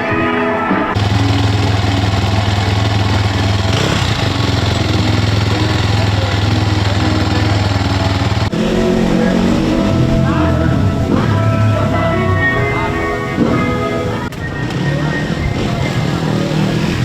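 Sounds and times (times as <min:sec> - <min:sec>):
motorcycle engine running: 0:01.0 - 0:17.0.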